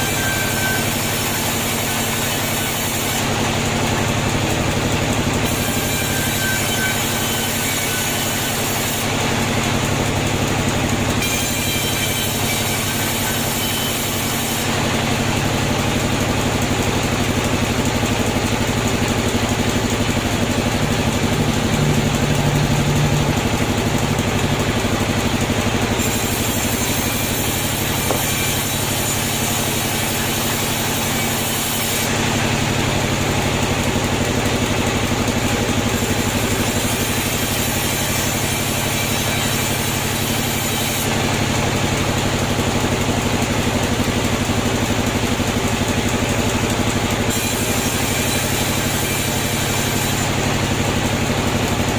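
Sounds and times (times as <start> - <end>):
sawmill machinery humming: 0.0 - 51.9.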